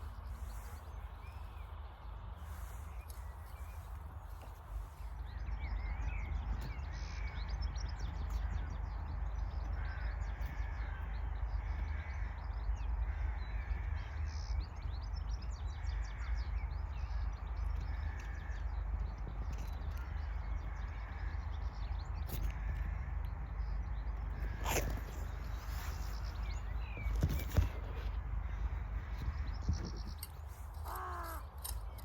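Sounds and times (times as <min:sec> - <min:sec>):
scratchy rustling in soil: 0:00.0 - 0:05.3, 0:24.5 - 0:28.2
birds calling: 0:00.0 - 0:32.0.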